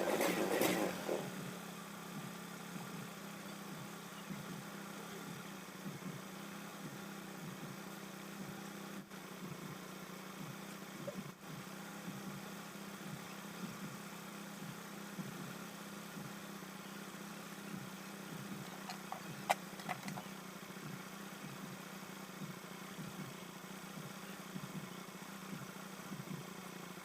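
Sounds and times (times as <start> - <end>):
scooter idling: 0.0 - 27.0
sharp clicks: 18.6 - 20.3.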